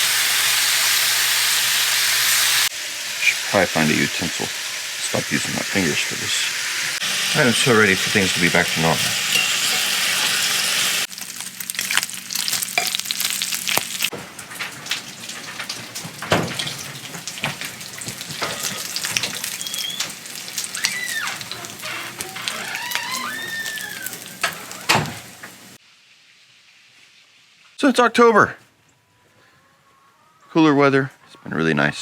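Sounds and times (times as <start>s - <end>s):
bacon sizzling in a pan: 0.0s - 27.7s.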